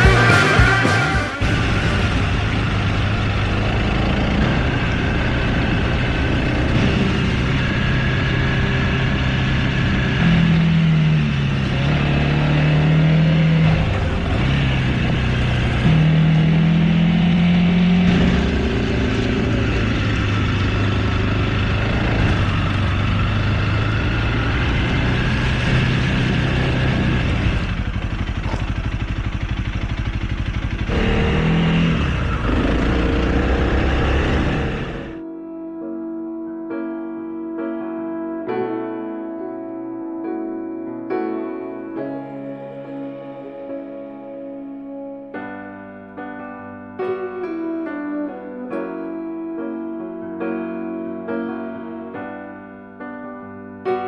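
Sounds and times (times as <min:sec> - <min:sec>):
motorcycle engine revving: 0:00.0 - 0:35.2.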